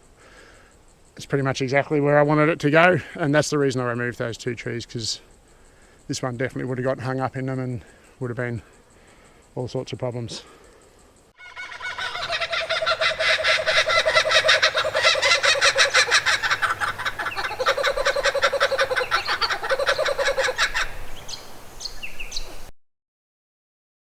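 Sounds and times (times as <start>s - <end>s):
birds chattering: 5.3s - 22.7s
high falling bird chirps: 11.0s - 22.7s.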